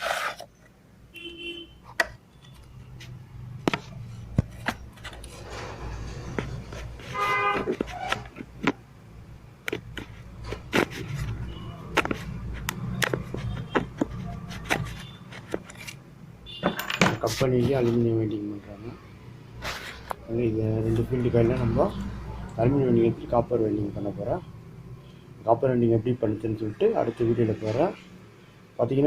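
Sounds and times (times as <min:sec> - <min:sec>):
metal parts clicking and knocking: 0:16.6 - 0:17.4.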